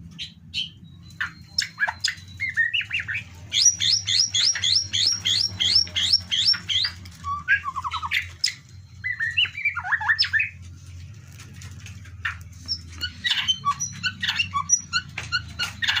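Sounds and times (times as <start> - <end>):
bird singing whistled phrases: 0.2 - 10.6.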